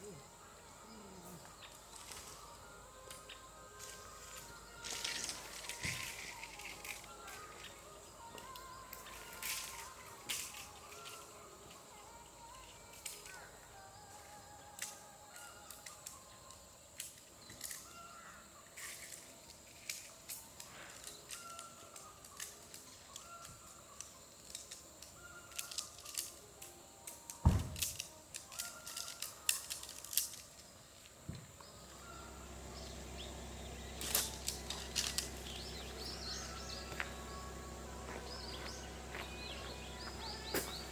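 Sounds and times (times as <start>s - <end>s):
birds chirping: 0.0s - 26.5s, 30.4s - 40.9s
steady low hum: 31.6s - 40.9s.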